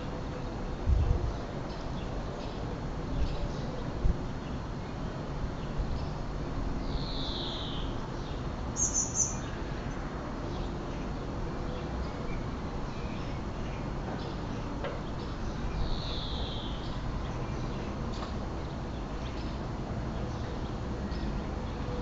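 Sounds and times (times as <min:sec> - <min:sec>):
small birds calling: 0:07.0 - 0:09.6.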